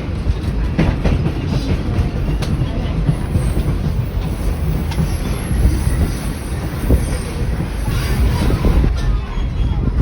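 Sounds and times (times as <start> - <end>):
train carriage rumbling on rails: 0.0 - 10.0.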